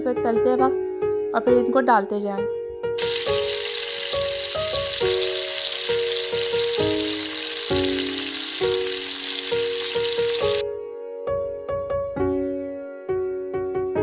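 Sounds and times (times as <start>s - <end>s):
kababs sizzling in oil: 3.0s - 10.6s.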